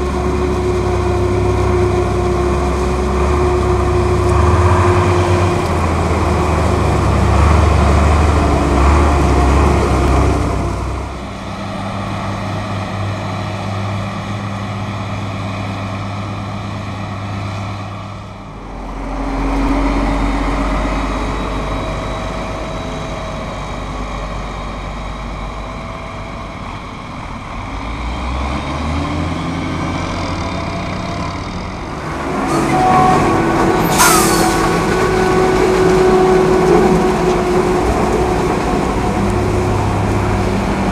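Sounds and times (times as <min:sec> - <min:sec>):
diesel farm machinery engine hum: 0:00.0 - 0:40.9
short hiss: 0:33.9 - 0:34.7.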